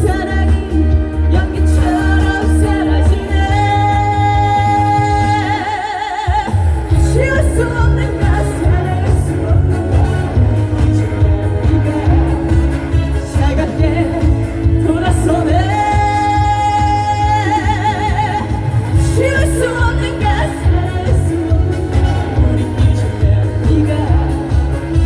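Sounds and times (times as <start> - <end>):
woman singing: 0.0 - 25.0
backing music with bass beat: 6.3 - 25.0.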